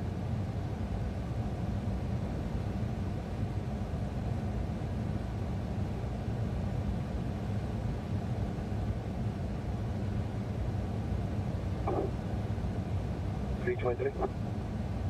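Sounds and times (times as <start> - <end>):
car engine low rumble: 10.8 - 15.0.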